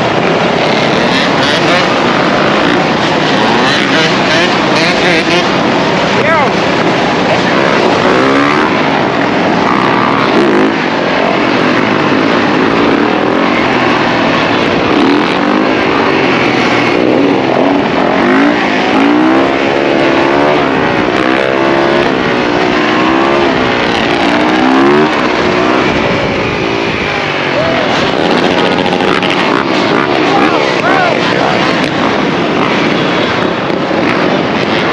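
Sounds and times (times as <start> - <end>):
dirt bike and atv engines revving: 0.0 - 34.9.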